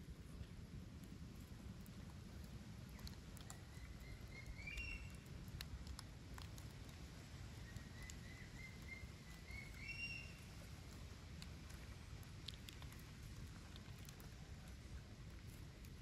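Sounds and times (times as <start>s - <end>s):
low outdoor rumble: 0.0s - 16.0s
bird whistling call: 8.2s - 10.4s.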